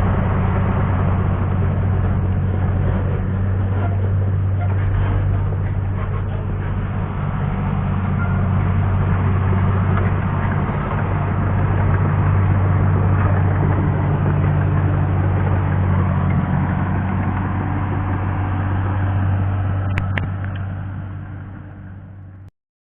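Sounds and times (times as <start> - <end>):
bulldozer diesel engine running: 0.0 - 22.5.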